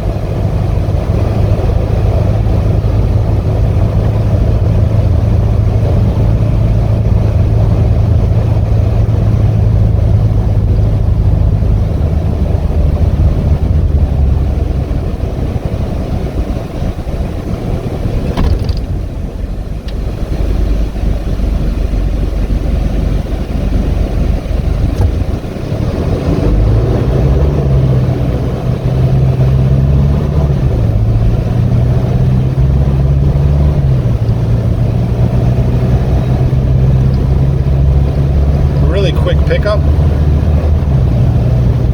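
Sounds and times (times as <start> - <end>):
road noise: 0.0 - 41.9
truck diesel engine running: 0.0 - 41.9.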